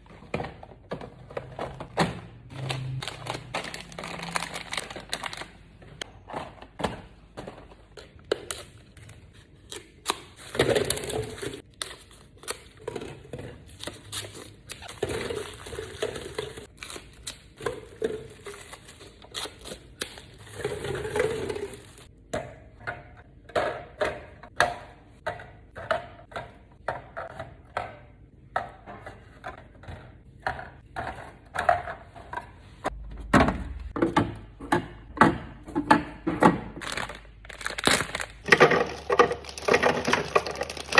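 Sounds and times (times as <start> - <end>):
containers clicking and knocking: 0.1 - 8.5, 20.5 - 40.9
plastic packaging crinkling: 2.5 - 5.8, 36.8 - 40.9.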